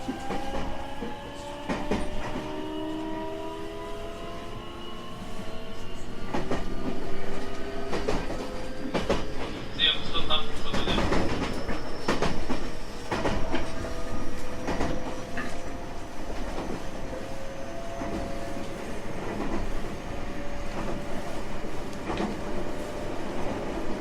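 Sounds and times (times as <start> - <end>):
train rumble: 0.0 - 24.0
train wheels clicking over rail joints: 10.6 - 15.7.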